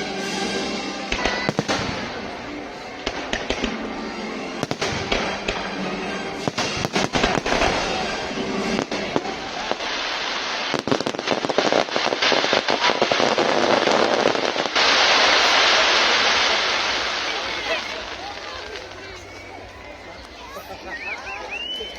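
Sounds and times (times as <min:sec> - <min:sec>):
music: 0:00.0 - 0:10.8
fireworks bangs and crackles: 0:00.0 - 0:20.6
loud even hiss: 0:06.6 - 0:19.6.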